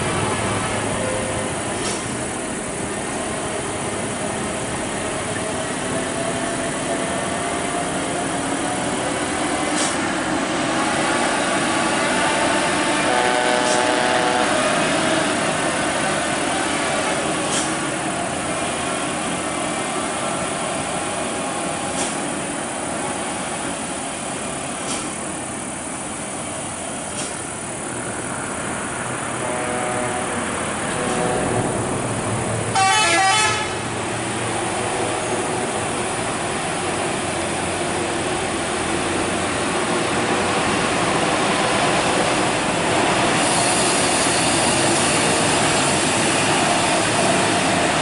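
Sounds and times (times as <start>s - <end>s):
traffic noise: 0.0s - 48.0s.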